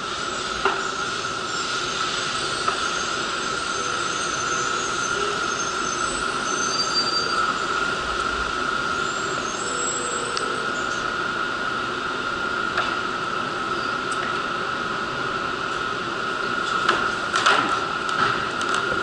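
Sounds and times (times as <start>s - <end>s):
steady high whine: 0.0s - 19.0s
train slowing to a stop: 0.0s - 19.0s
wheel squeals: 0.8s - 7.7s, 9.0s - 11.1s.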